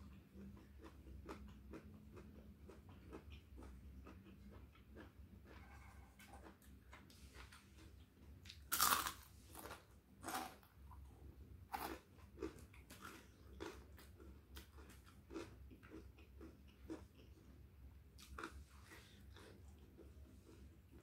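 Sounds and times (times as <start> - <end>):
crunchy food biting and chewing: 8.5 - 10.7, 11.7 - 17.6.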